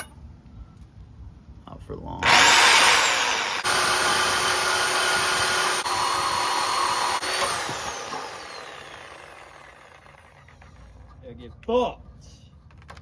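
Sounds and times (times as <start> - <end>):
power tool running: 2.2 - 10.8.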